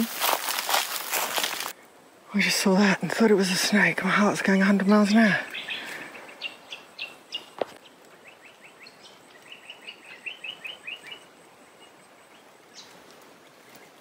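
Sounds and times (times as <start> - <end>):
bird chirping: 4.6 - 13.0.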